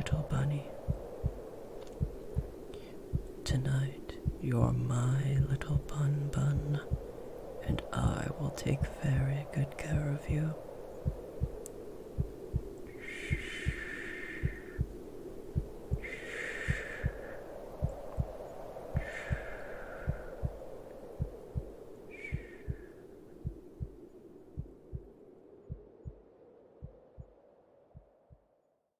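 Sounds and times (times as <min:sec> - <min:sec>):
low background hum: 0:00.0 - 0:26.2
soft breathy swells: 0:00.0 - 0:28.1
slow heartbeat: 0:00.0 - 0:28.6.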